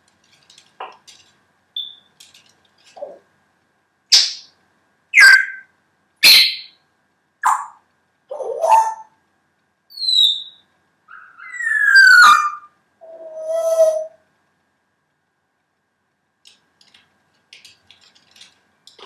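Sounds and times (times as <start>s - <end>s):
parrot whistling: 1.8s - 2.0s, 5.2s - 6.8s, 9.9s - 14.2s
parrot hooting: 5.2s - 6.7s, 7.4s - 9.1s, 9.9s - 14.2s
faint small clicks: 16.4s - 19.0s.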